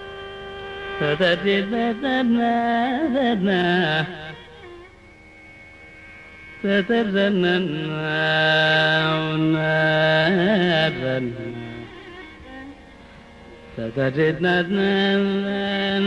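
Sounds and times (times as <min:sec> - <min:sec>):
tanpura drone: 0:00.0 - 0:16.0
man singing ornamented phrases: 0:00.9 - 0:04.5, 0:06.6 - 0:12.3, 0:13.7 - 0:16.0.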